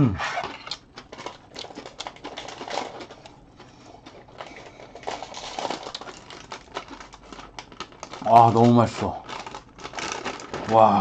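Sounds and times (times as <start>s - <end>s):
person chewing food: 0.3s - 8.1s.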